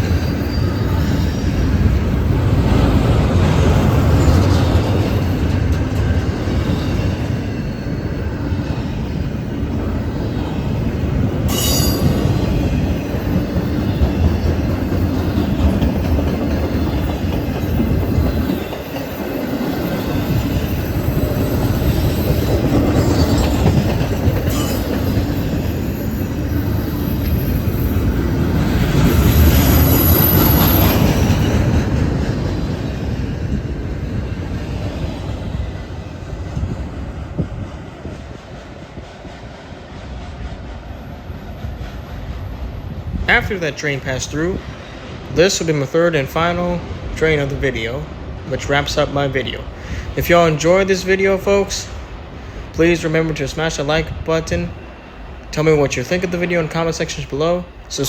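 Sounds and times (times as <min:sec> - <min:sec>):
high wheel squeals: 0:00.0 - 0:03.0, 0:03.9 - 0:36.0
train wheels rumbling and clacking: 0:00.0 - 0:58.0.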